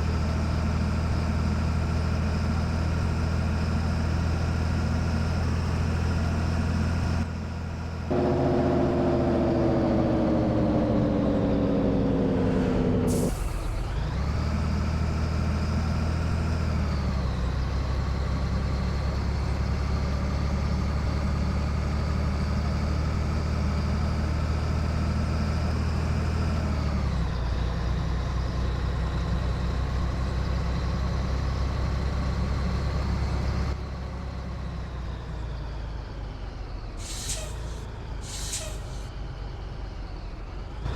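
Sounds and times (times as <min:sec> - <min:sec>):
diesel truck engine running: 0:00.0 - 0:40.9
air release hiss: 0:37.0 - 0:39.1.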